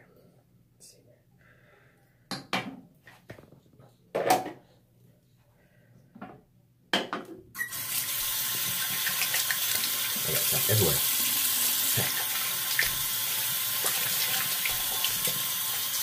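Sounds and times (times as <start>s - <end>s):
tap water running into sink: 7.6s - 16.0s.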